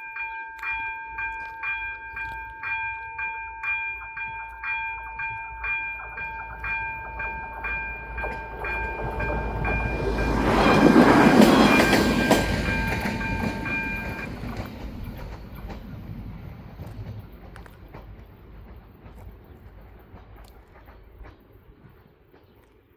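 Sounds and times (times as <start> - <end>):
level crossing warning bell: 0.0 - 14.6
train rumbling past: 1.8 - 22.9.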